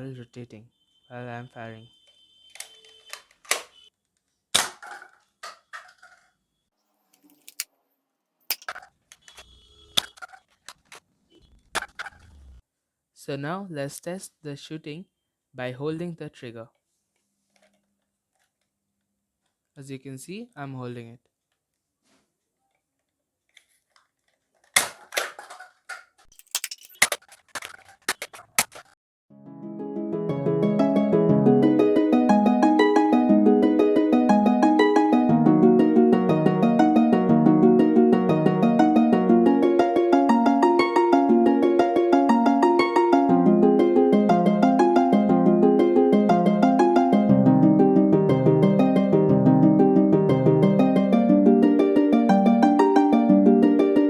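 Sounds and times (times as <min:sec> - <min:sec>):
toy blaster plastic clacks and snaps: 0:02.6 - 0:03.8, 0:23.5 - 0:29.0.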